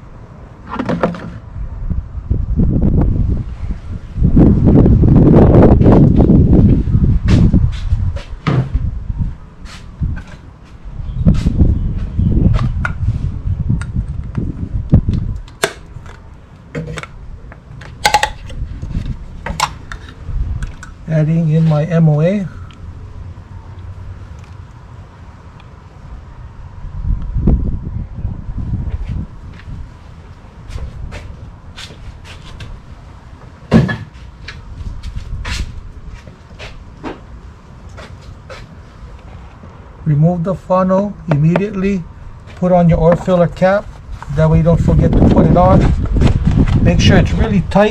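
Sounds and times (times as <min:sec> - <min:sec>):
bottle clicks and knocks: 0:18.0 - 0:18.5.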